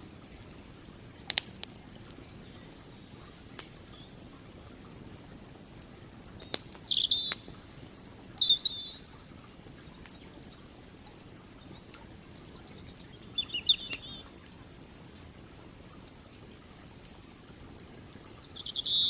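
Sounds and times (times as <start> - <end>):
campfire crackling and popping: 0.0 - 19.0
creek water rushing: 0.0 - 19.0
bird chirping: 1.9 - 4.3, 6.3 - 9.1, 9.9 - 14.3, 18.4 - 19.0.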